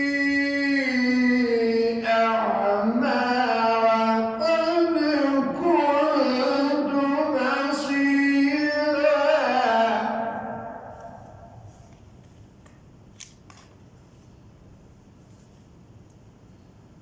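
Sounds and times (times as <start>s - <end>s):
man chanting recitation: 0.0s - 11.8s.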